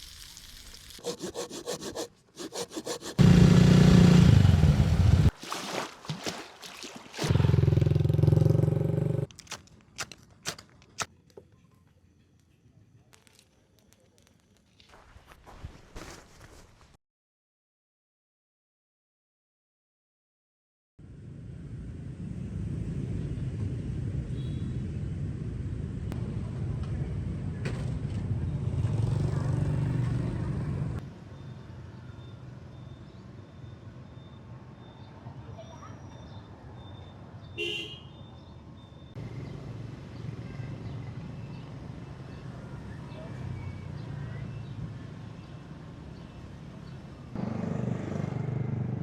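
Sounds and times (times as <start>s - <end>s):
vehicle engine rumbling: 3.2s - 5.3s, 7.3s - 11.1s.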